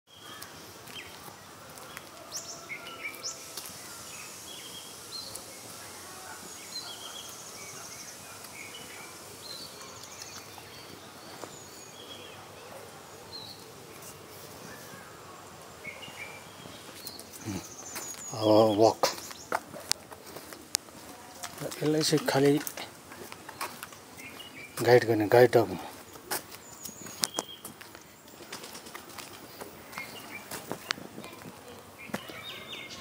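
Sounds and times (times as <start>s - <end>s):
small birds chirping: 0.1s - 33.0s
steady background hiss: 0.1s - 33.0s.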